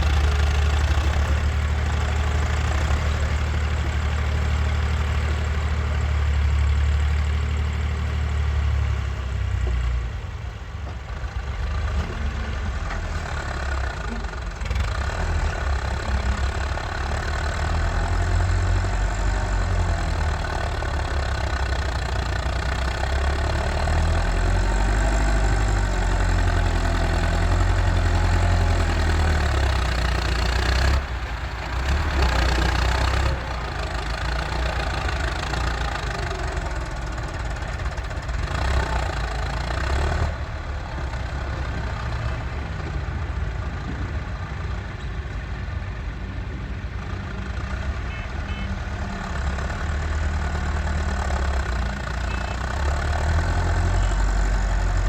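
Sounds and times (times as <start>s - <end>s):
tractor diesel engine rumble: 0.0s - 55.0s.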